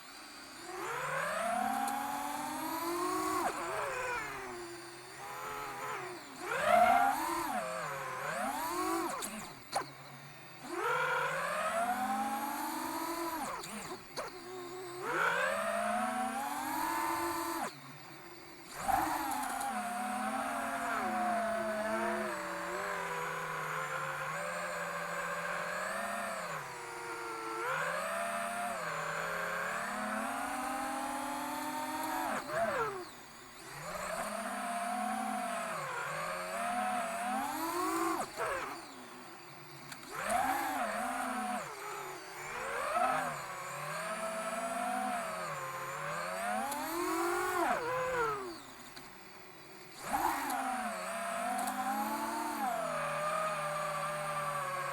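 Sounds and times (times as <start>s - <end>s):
drone motors whining: 0.0s - 54.9s.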